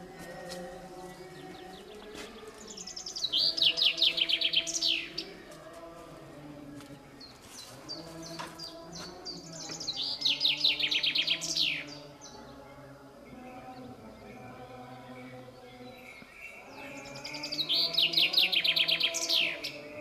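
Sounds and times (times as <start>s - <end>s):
songbird singing: 0.0s - 20.0s.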